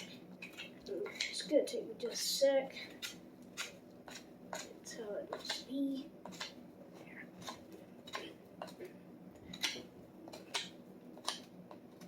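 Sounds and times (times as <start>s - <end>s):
knife scraping wood: 2.8s - 8.9s.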